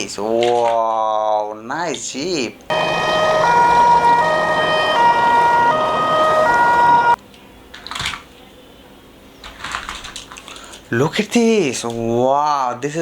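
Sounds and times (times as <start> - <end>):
toy siren two-tone wail: 2.7 - 7.2.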